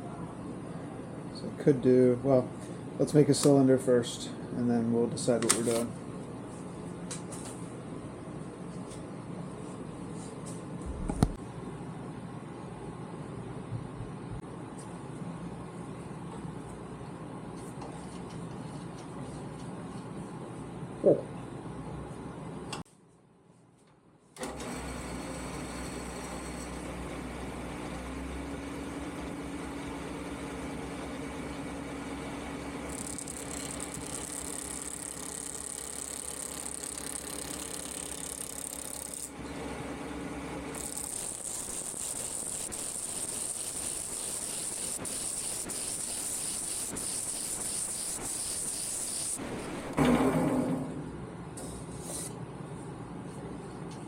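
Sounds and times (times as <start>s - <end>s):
lathe running: 24.4s - 50.0s
turning tool cutting wood hiss: 32.8s - 39.3s, 40.8s - 50.0s.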